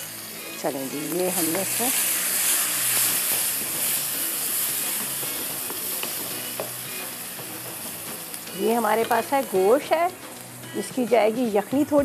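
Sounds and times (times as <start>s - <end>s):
masala sizzling in a wok: 0.0s - 12.0s
spatula tapping pan: 2.8s - 6.8s.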